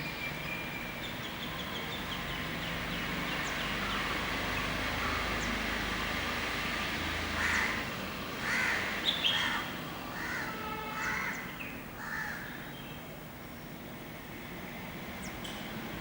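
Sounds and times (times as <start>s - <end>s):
bird harsh calls: 7.4s - 13.0s.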